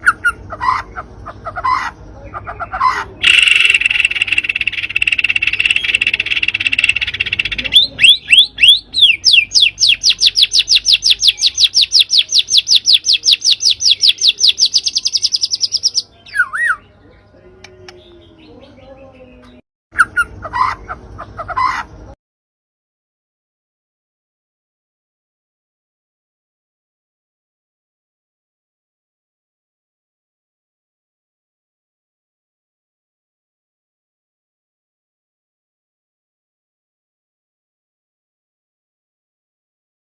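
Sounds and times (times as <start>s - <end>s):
songbird buzzy chatter: 0.0s - 22.2s.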